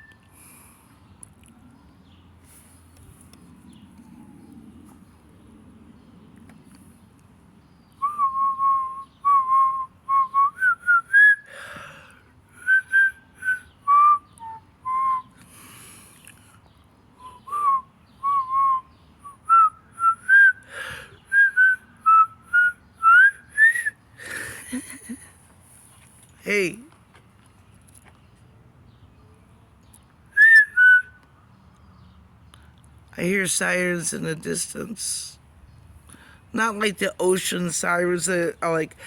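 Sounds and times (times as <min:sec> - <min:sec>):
quick breaths: 0:00.2 - 0:01.1, 0:11.4 - 0:12.6, 0:15.4 - 0:16.6, 0:20.6 - 0:21.3, 0:24.2 - 0:24.6, 0:36.0 - 0:36.5
woman whistling a tune: 0:08.0 - 0:11.5, 0:12.6 - 0:15.4, 0:17.2 - 0:20.6, 0:21.3 - 0:24.0, 0:30.4 - 0:31.2.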